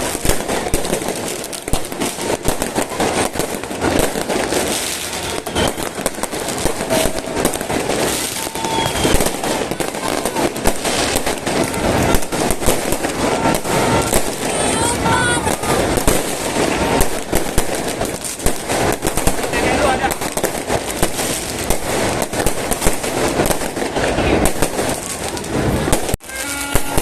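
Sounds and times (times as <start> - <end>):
firework whistles: 0.0 - 25.1, 25.9 - 27.0
fireworks banging and crackling: 0.0 - 27.0.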